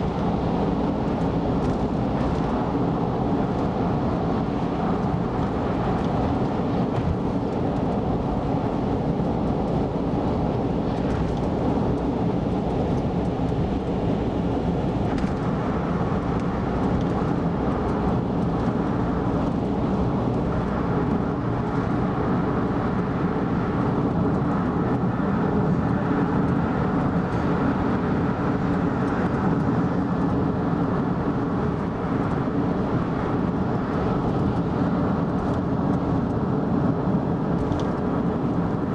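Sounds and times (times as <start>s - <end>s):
car engine noise: 0.0s - 38.9s.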